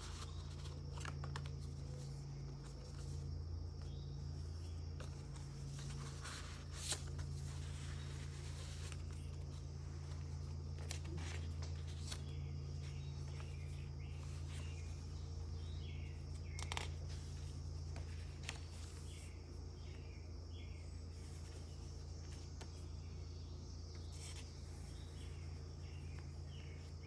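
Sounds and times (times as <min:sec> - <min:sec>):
paper pages turning: 0:00.0 - 0:19.3, 0:23.9 - 0:25.4
faint bird chirps: 0:00.0 - 0:27.0
steady low hum: 0:00.0 - 0:27.0.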